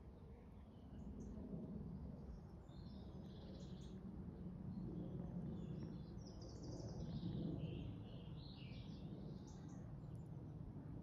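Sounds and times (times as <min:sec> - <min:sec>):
low rush of wind: 0:00.0 - 0:11.0.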